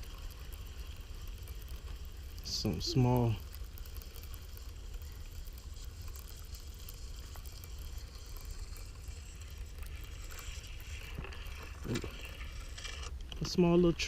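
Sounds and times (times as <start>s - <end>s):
faint crackle: 0.0s - 14.0s.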